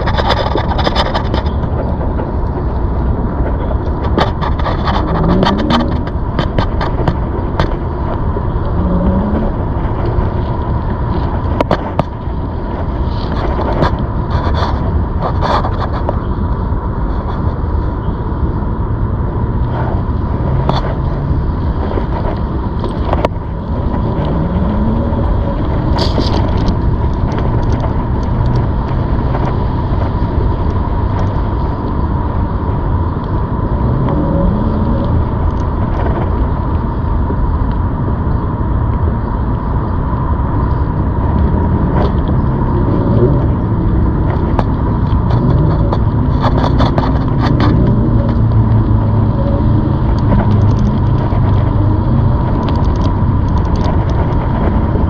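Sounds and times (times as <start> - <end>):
clicks and rattles: 0.0 - 16.4, 20.6 - 32.0, 41.2 - 55.0
electric bike rumble: 0.0 - 55.0.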